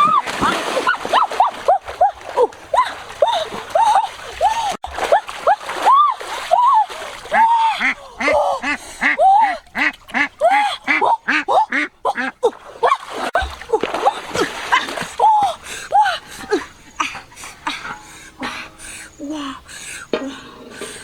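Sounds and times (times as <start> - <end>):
ducks quacking: 7.4 - 12.4.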